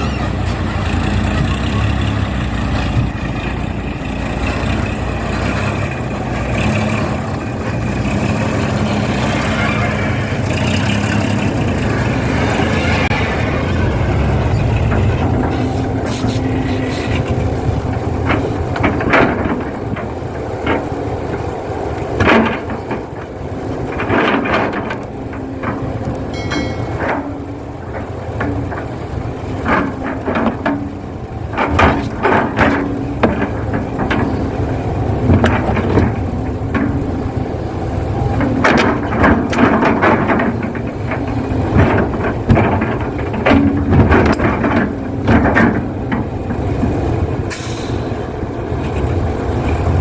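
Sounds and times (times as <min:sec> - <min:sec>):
excavator engine drone: 0:00.0 - 0:50.0
excavator bucket clunks: 0:14.3 - 0:49.9.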